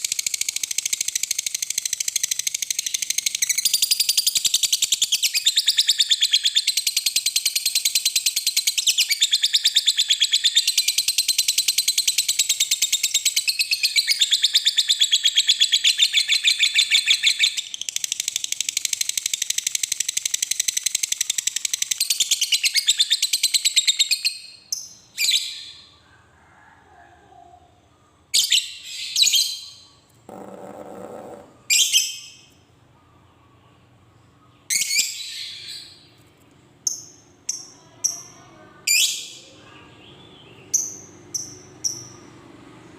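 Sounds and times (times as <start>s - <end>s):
bird chattering trill: 0.0s - 24.8s, 28.4s - 32.5s.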